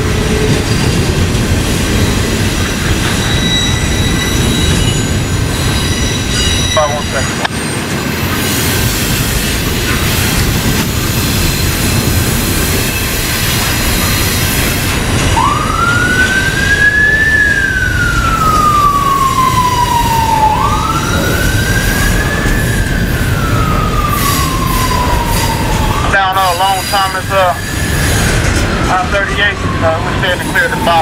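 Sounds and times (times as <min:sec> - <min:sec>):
passing train noise: 0:00.0 - 0:31.0
emergency siren wailing: 0:14.8 - 0:31.0.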